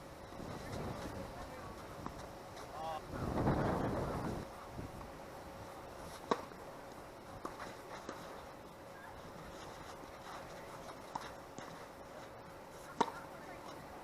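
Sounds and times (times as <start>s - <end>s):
faint wind hiss: 0.0s - 14.0s
tennis ball struck and bouncing: 6.2s - 6.6s, 12.9s - 13.3s.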